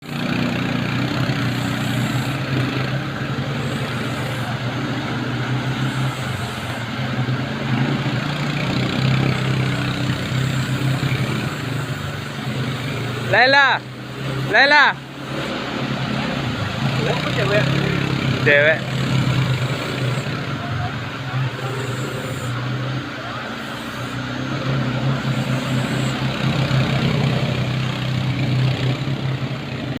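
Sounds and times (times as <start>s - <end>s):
quad bike engine idling: 0.0s - 30.0s.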